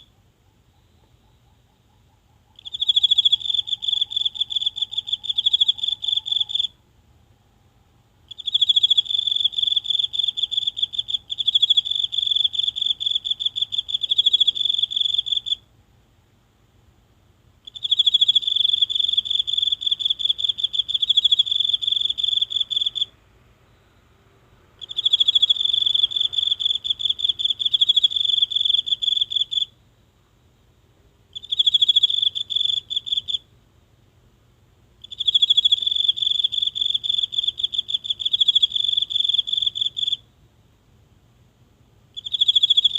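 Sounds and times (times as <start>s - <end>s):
insect trilling: 0.7s - 6.7s, 8.3s - 15.6s, 17.7s - 23.1s, 24.8s - 29.7s, 31.3s - 33.4s, 35.0s - 40.2s, 42.2s - 42.9s.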